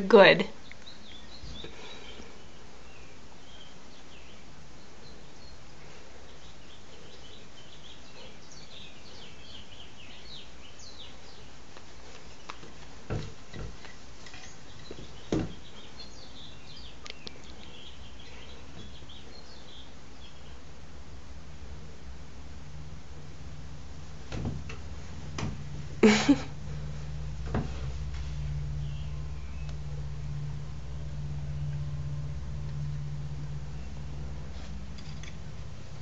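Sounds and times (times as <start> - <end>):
small birds chirping: 0.0 - 20.8, 28.3 - 30.1
low background hum: 0.0 - 36.0.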